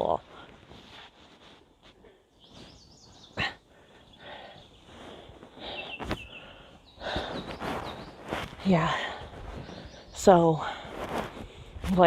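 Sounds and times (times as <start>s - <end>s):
faint bird chirps: 2.3s - 10.5s.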